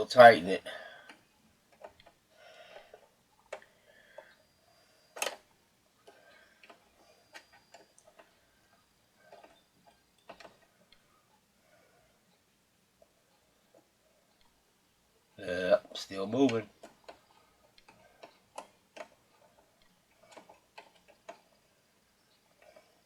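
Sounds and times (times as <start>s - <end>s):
clicks of small parts: 5.2s - 5.5s.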